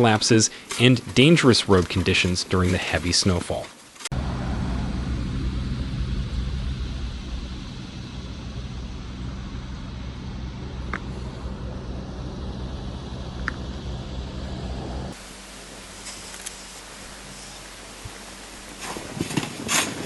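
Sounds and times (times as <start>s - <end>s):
quiet hiss: 0.0s - 20.0s
road traffic rumble: 4.1s - 20.0s.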